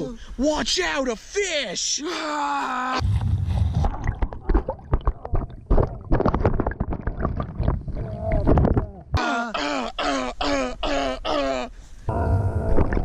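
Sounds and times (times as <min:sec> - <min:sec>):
splashing and thrashing in water: 0:03.0 - 0:09.1
person crying out: 0:08.8 - 0:13.0.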